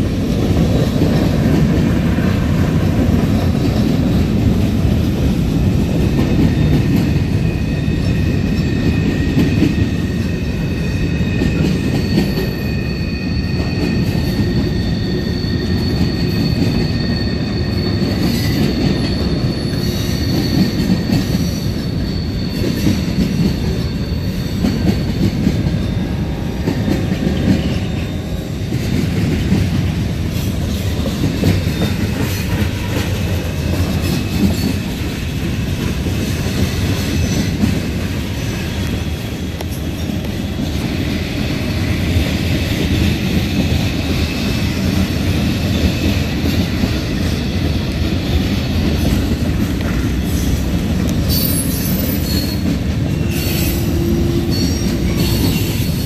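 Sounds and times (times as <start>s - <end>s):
steel wheels rumbling on rails: 0.0s - 56.0s
high wheel squeals: 6.3s - 29.0s, 43.9s - 56.0s.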